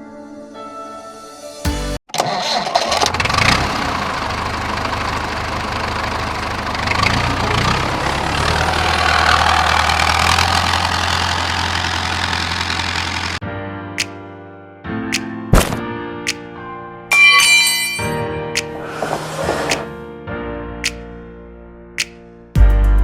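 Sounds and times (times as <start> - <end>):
small tractor engine running: 2.2 - 13.4.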